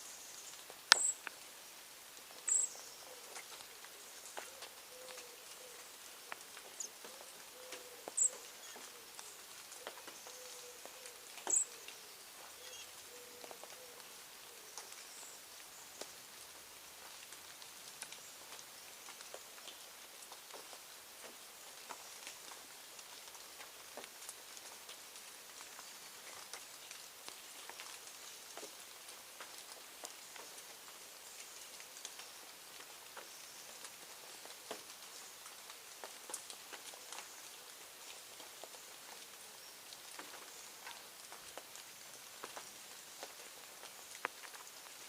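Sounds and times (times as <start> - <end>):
steady high hiss: 0.0 - 45.0
light ticks and patter: 0.1 - 45.0.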